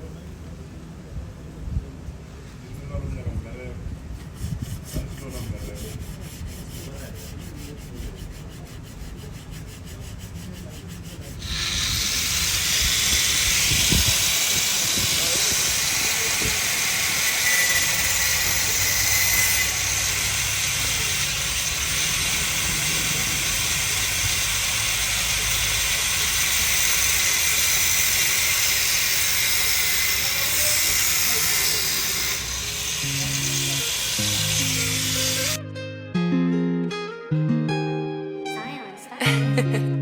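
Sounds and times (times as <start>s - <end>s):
high-pressure spray hissing: 11.4s - 35.6s
strummed acoustic guitar music: 33.0s - 40.0s.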